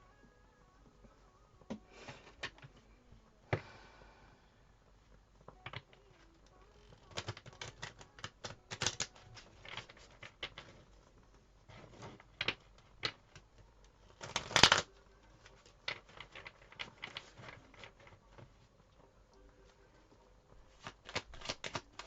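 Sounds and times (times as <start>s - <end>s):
cards being shuffled: 6.8s - 11.1s, 11.7s - 18.5s, 20.6s - 22.0s.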